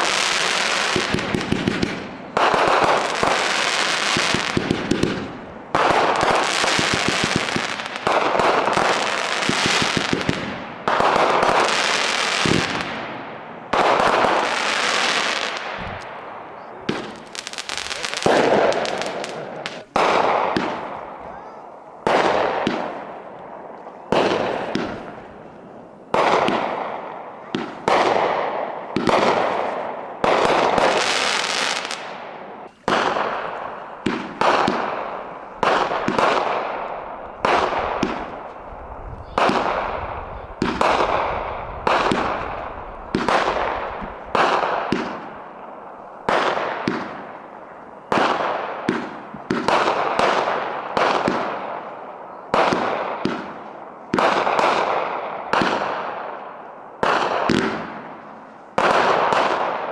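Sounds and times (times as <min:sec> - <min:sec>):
fireworks bangs: 0:00.0 - 0:59.9
fireworks crackling: 0:00.0 - 0:59.9.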